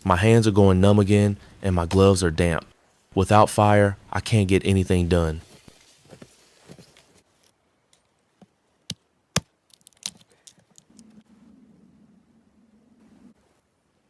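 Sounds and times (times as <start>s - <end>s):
dry wood cracking: 7.4s - 11.2s.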